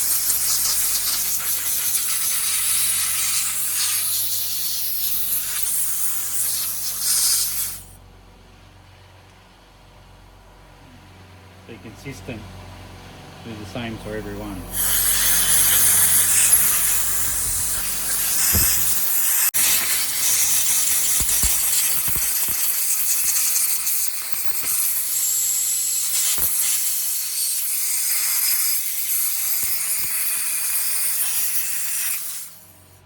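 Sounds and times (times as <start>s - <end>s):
compressed air hissing: 0.0s - 8.0s, 14.7s - 32.9s.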